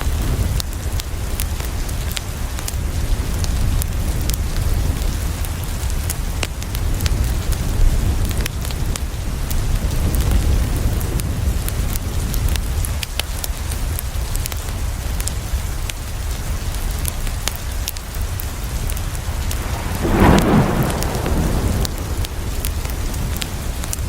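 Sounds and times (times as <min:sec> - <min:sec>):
rain on a window: 0:00.0 - 0:24.0
wood fire crackling: 0:11.9 - 0:24.0
deep low rumble: 0:19.1 - 0:24.0.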